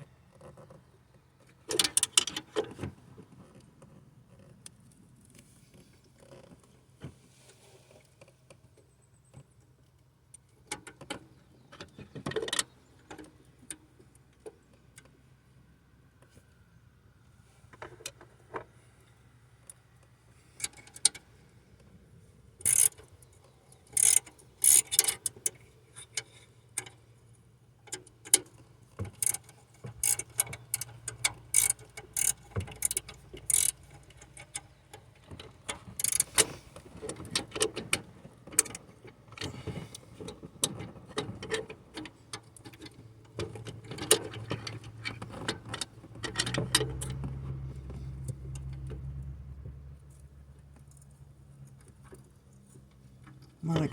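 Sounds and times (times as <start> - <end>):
ratchet and wrench clicking on metal: 22.6 - 23.0, 23.9 - 26.9, 29.1 - 34.6, 35.9 - 36.6.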